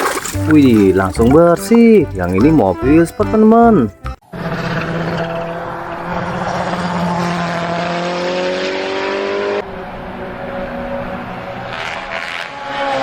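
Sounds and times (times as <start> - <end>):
race car engine revving: 4.4 - 13.0.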